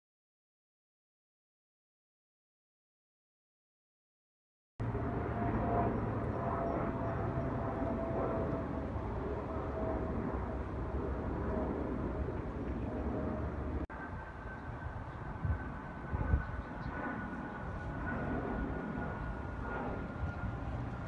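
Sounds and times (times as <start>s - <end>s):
aircraft engine rumble with whine: 4.8s - 21.0s
higher steady drone: 4.8s - 21.0s.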